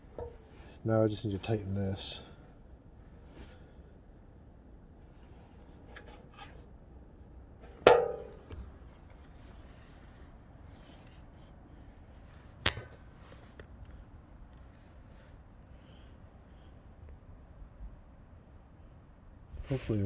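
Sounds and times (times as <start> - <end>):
sharp metal clanks: 7.8 - 8.6.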